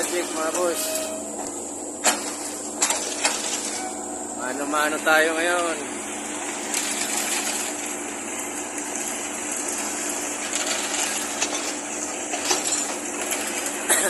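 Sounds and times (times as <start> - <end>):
concrete scraping and sliding: 0.0 - 1.5
low machine hum: 0.0 - 14.0.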